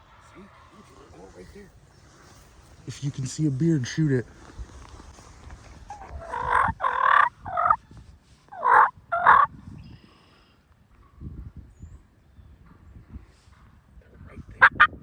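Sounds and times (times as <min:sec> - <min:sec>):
turkeys gobbling: 0:05.9 - 0:07.8, 0:08.5 - 0:09.5, 0:14.6 - 0:15.0.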